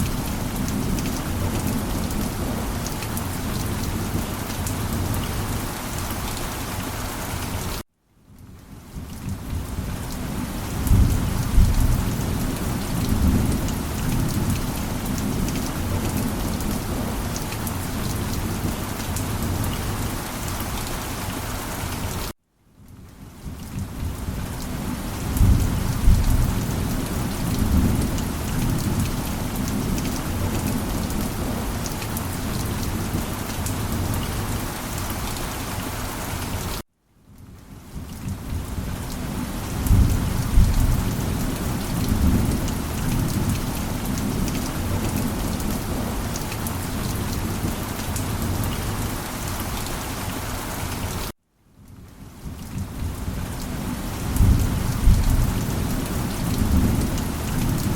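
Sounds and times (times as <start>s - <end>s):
heavy rain falling: 0.0s - 7.8s, 8.4s - 22.4s, 23.2s - 36.8s, 37.5s - 51.4s, 52.0s - 57.9s
low thunder rumbling: 25.3s - 31.8s, 39.3s - 46.3s, 54.3s - 57.9s.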